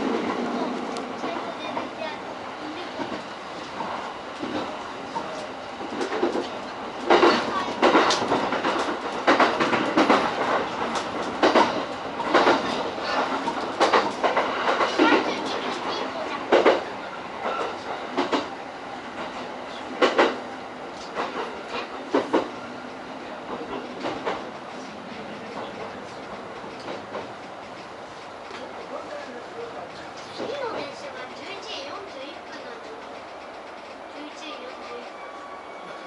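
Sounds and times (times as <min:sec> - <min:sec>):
train running noise: 0:00.0 - 0:36.0
train wheels clacking over rail joints: 0:03.0 - 0:18.5, 0:20.0 - 0:20.4.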